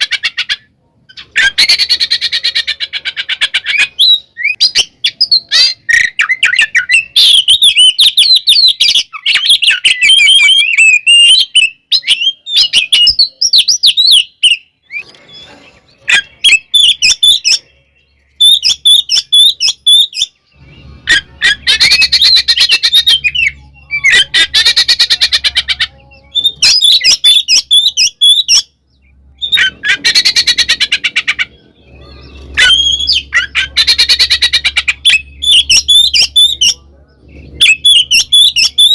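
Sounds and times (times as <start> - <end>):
bird singing whistled phrases: 3.7 - 15.1, 18.4 - 28.7, 31.9 - 36.8.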